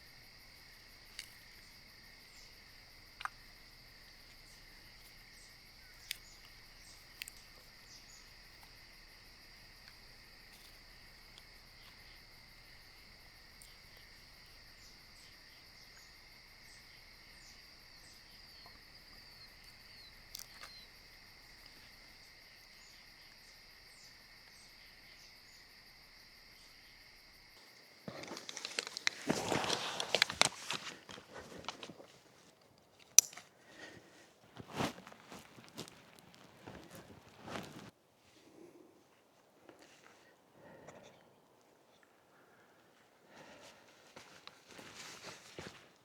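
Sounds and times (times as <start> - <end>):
insect chorus trilling: 0.0 - 37.9
footsteps on a trail: 27.6 - 37.9, 43.3 - 46.0.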